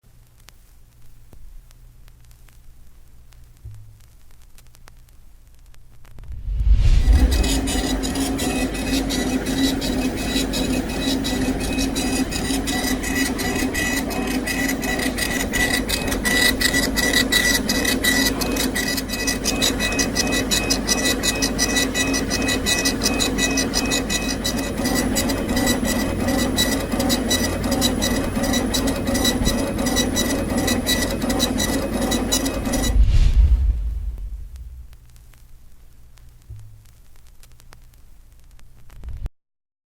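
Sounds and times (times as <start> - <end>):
laser cutter motor and fan hum: 6.3 - 35.1.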